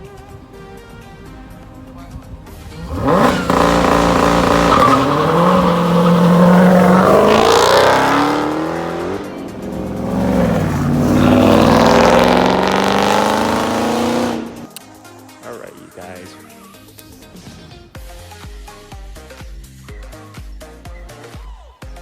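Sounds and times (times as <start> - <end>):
car engine revving: 0.0 - 14.7.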